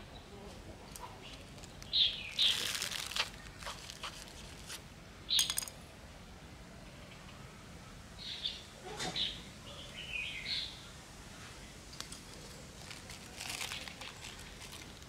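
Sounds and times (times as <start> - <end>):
rustling of plant cuttings: 0.5 - 4.8, 11.9 - 15.0.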